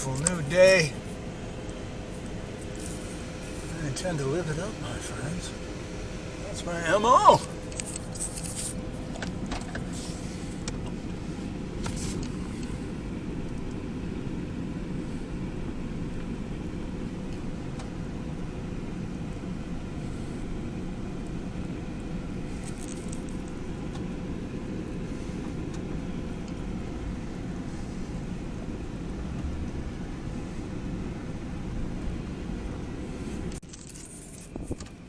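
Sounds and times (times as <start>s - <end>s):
faint steady hum: 0.0s - 35.0s
van engine rumble from cabin: 0.0s - 35.0s.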